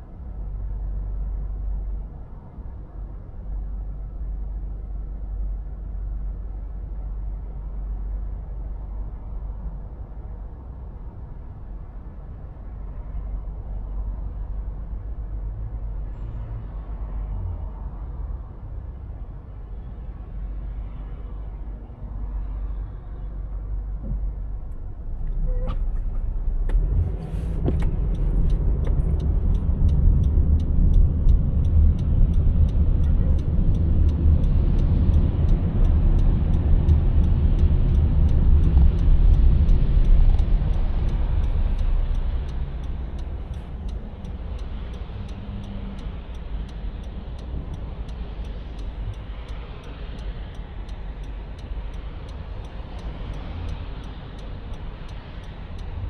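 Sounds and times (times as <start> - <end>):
car engine and road rumble: 0.0 - 56.0
faint regular ticking: 27.8 - 56.0.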